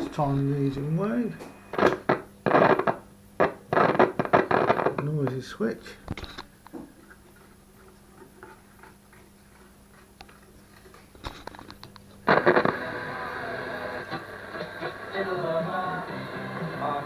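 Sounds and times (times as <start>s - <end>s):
radio broadcast: 0.0s - 6.4s, 12.2s - 17.0s.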